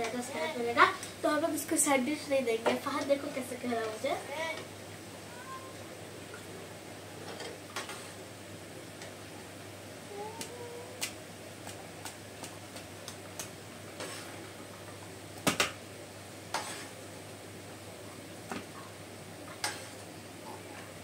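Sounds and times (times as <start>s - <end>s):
nuggets sizzling in oil: 13.4s - 17.6s, 18.9s - 20.2s.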